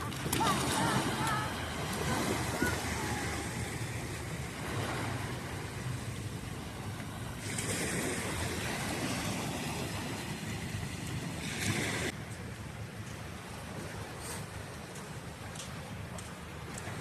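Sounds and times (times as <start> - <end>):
wind buffeting microphone: 0.0 - 12.1
sea waves washing ashore: 0.0 - 17.0.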